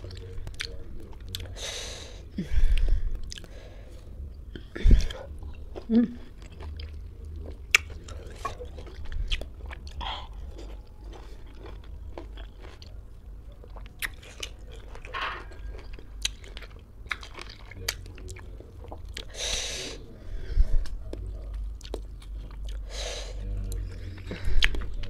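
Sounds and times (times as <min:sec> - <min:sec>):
wet chewing smacks and clicks: 0:06.4 - 0:12.9.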